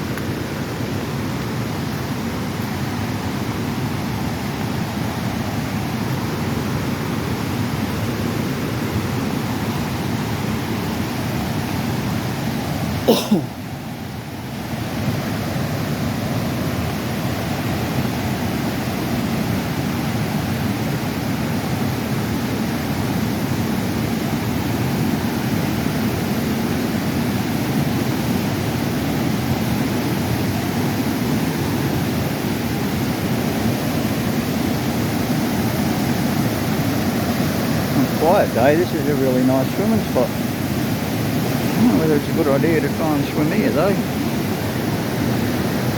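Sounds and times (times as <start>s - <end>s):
creek water rushing over rocks: 0.0s - 45.9s.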